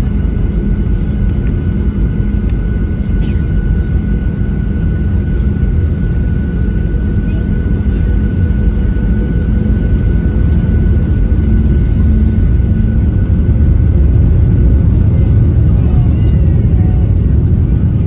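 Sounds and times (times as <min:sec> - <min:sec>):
jet engine and airflow rumble: 0:00.0 - 0:18.0.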